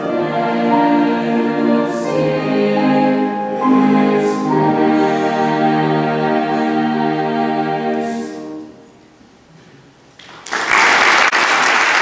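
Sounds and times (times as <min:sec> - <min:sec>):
choir singing a chord: 0:00.0 - 0:09.2
audience applauding: 0:10.2 - 0:12.0.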